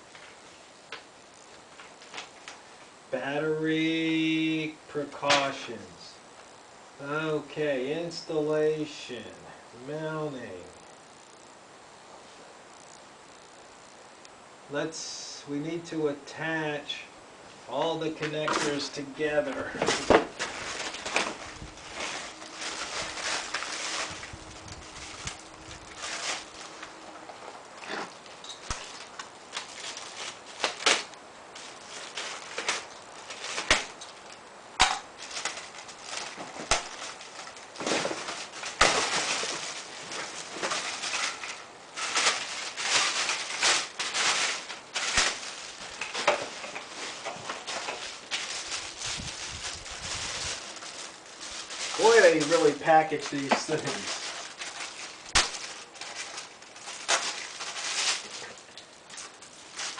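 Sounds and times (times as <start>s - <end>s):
packaging rustling and crinkling: 0.0s - 2.9s, 17.7s - 59.9s.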